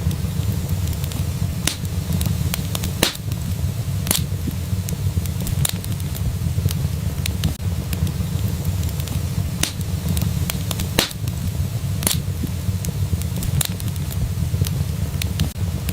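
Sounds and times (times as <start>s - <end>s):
fireplace fire crackling: 0.0s - 15.9s
low rumble: 0.0s - 15.9s
sharp pops: 0.7s - 6.2s, 8.4s - 14.2s.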